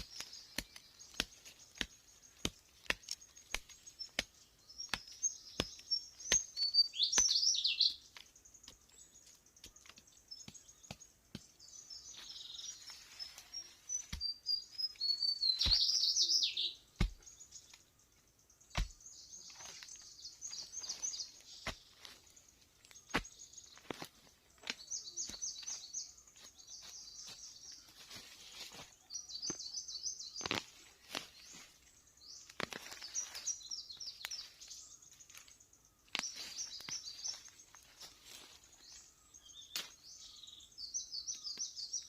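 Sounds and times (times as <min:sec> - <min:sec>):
birds chirping and singing: 0:00.0 - 0:42.0.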